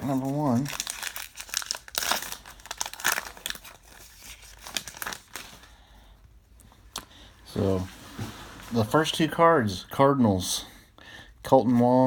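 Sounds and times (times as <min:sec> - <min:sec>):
plastic wrapper tearing and crinkling: 0:00.0 - 0:05.7.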